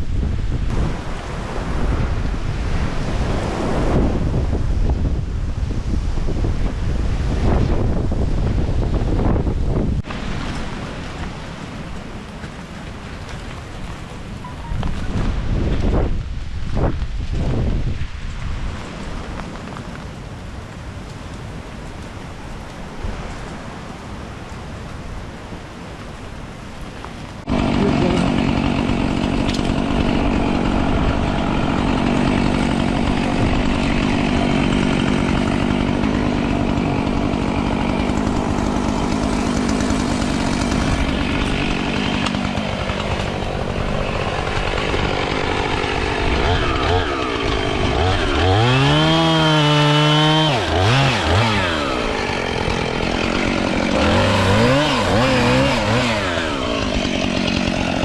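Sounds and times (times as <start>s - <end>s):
chainsaw running and revving: 27.4s - 58.0s.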